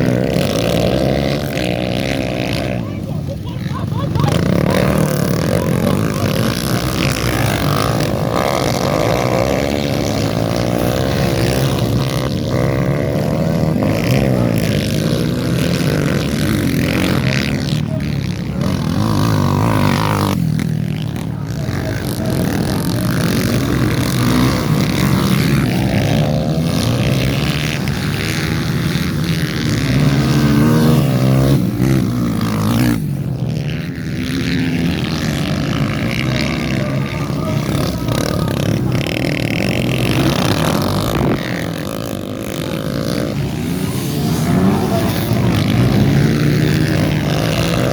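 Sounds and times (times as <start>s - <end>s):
dirt bike engines revving: 0.0s - 47.9s.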